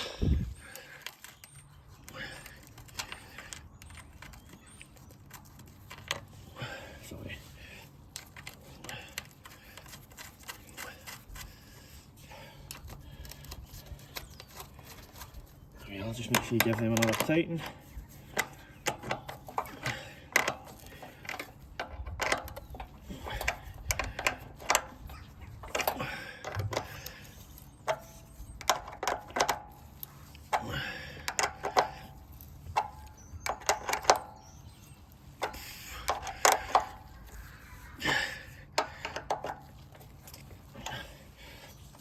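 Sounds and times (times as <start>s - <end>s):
spanner clicking and knocking on metal: 31.2s - 34.4s.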